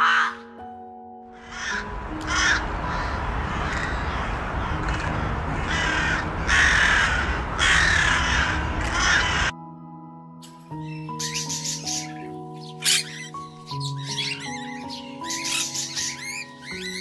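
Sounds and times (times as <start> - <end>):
crow cawing: 0.0 - 0.6, 1.4 - 9.5
soft background music: 0.0 - 17.0
outdoor noise rush: 1.8 - 9.5.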